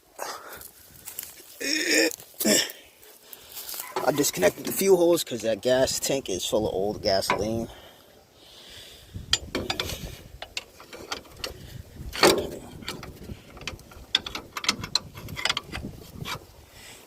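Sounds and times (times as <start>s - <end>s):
metallic hand tool clicks and clunks: 9.3s - 16.5s.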